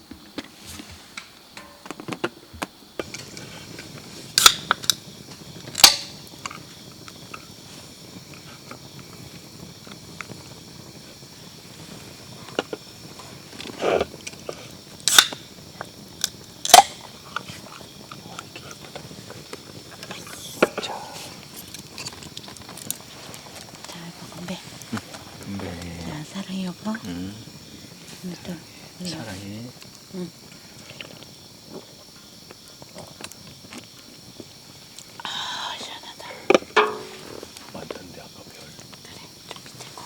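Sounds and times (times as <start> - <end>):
faint steady hiss: 0.0 - 40.0
cutlery and dishes clinking: 36.8 - 37.5.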